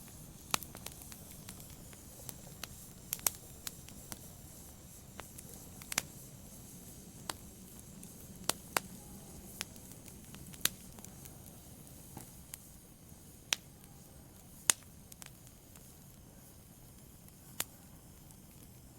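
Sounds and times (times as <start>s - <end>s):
wood fire crackling: 0.0s - 18.9s.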